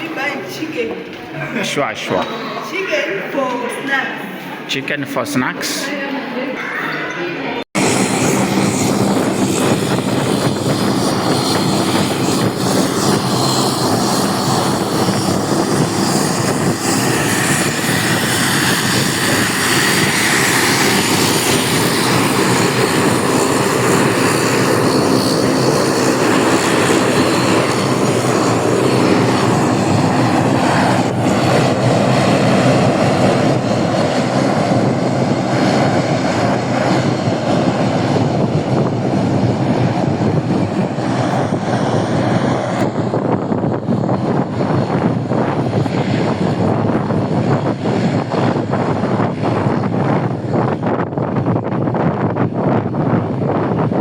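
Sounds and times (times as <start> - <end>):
jet airliner engines running: 7.6 - 54.0
low hum: 7.7 - 50.7.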